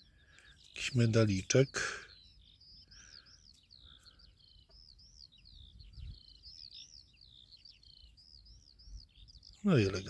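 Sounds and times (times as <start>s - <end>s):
faint bird song: 0.0s - 10.0s
wind on the microphone: 5.4s - 6.5s.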